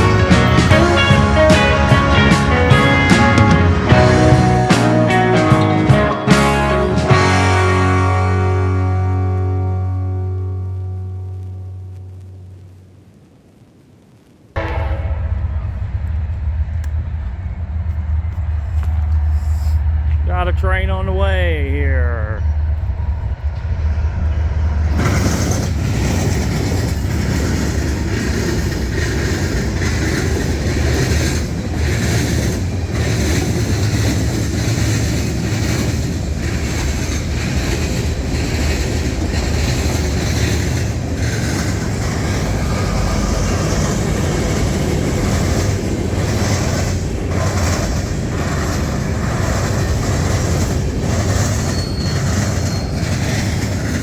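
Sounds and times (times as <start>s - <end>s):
train wheels rumbling on rail: 0.0s - 6.0s, 14.6s - 54.0s
wheels clattering over rail joints: 24.8s - 54.0s.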